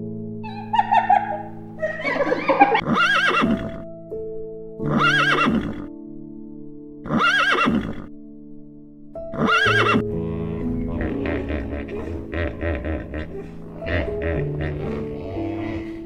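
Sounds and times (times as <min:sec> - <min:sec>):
background music with held notes: 0:00.0 - 0:16.0
horse whinnying: 0:02.7 - 0:03.8, 0:04.8 - 0:05.9, 0:07.0 - 0:08.1, 0:09.3 - 0:12.1, 0:13.4 - 0:16.0.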